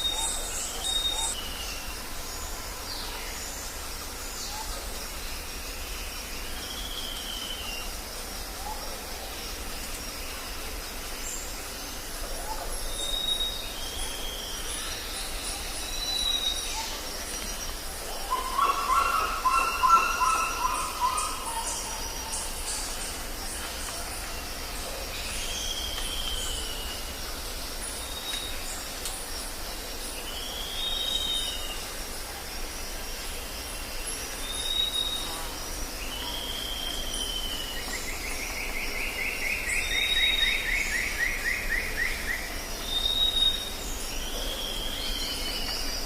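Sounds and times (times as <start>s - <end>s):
insect chorus: 0.0s - 46.0s
animal calls: 18.3s - 22.4s.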